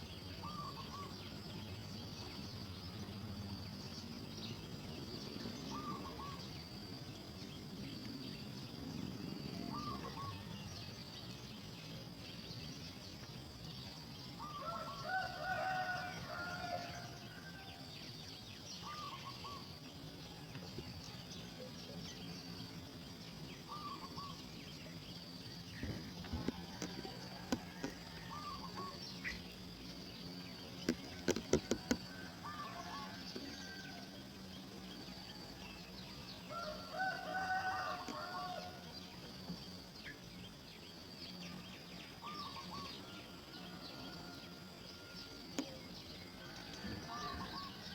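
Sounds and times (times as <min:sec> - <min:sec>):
high insect drone: 0:00.0 - 0:47.9
bird calling: 0:00.4 - 0:01.2, 0:05.6 - 0:06.6, 0:09.6 - 0:10.5, 0:18.8 - 0:19.8, 0:23.6 - 0:24.5, 0:25.8 - 0:29.5, 0:30.8 - 0:33.8, 0:42.2 - 0:43.8, 0:47.0 - 0:47.9.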